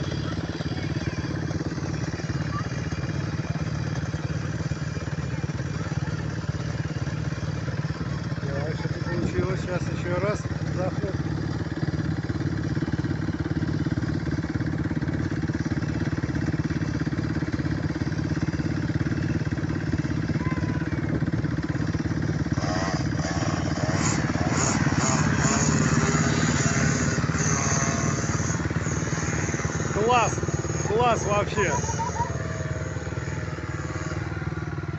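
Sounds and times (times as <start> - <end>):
small engines running: 0.0 - 34.9.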